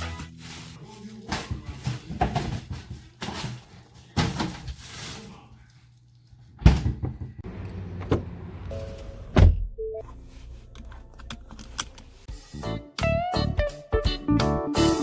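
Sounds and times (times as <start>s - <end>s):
faint music: 0.0s - 6.3s, 8.7s - 12.6s.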